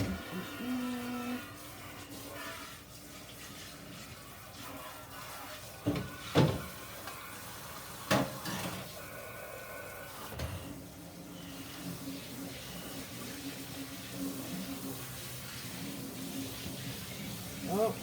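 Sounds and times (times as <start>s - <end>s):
kitchen knocks and clunks: 5.8s - 6.8s, 8.1s - 8.9s.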